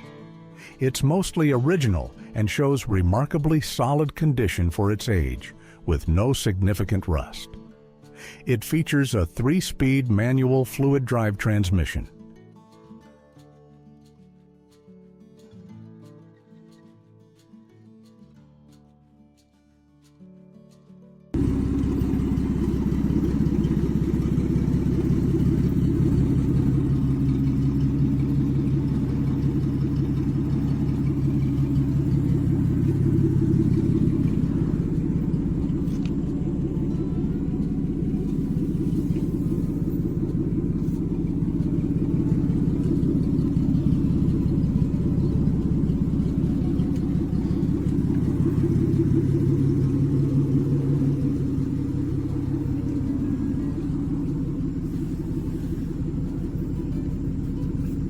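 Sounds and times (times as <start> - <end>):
car engine rumbling: 21.4 - 58.0.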